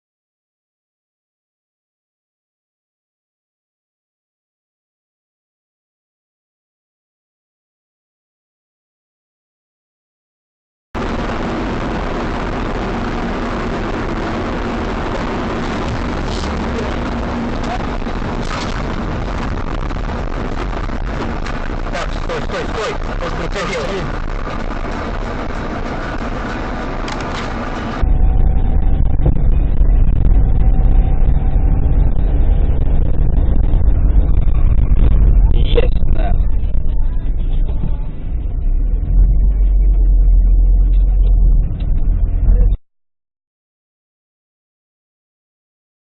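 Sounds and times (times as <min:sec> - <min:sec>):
car road and engine noise: 0:11.0 - 0:42.8
deep steady rumble: 0:11.0 - 0:42.8.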